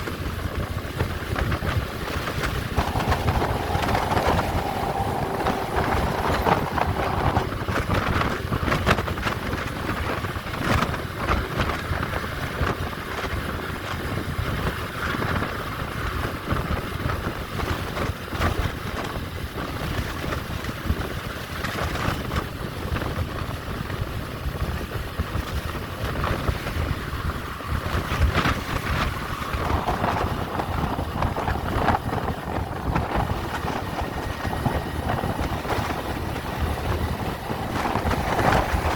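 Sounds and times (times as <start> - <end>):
wind buffeting microphone: 0.0 - 38.9
low vehicle rumble: 0.8 - 9.9, 25.6 - 38.9.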